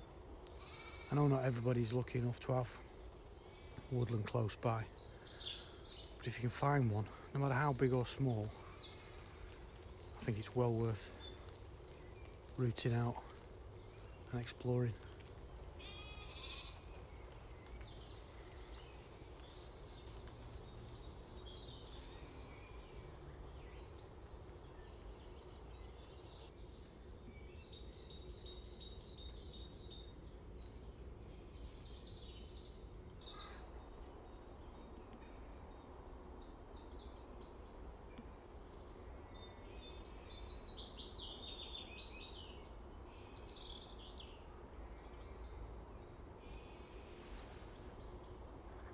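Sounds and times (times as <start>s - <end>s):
birds trilling and chirping: 0.0s - 48.9s.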